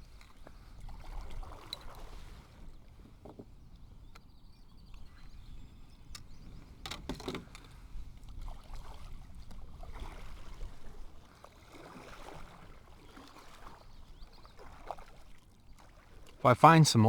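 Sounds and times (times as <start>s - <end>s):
water splashing around kayak: 0.0s - 3.2s, 7.8s - 17.0s.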